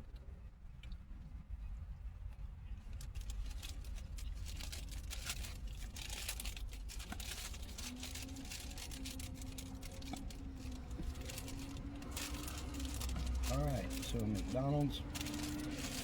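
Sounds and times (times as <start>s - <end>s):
paper wrapper crinkling: 3.0s - 16.0s.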